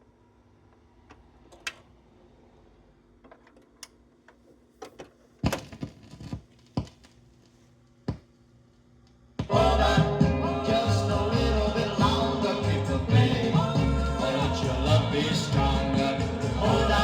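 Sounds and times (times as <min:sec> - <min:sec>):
sharp clicks and knocks: 0:03.2 - 0:07.2.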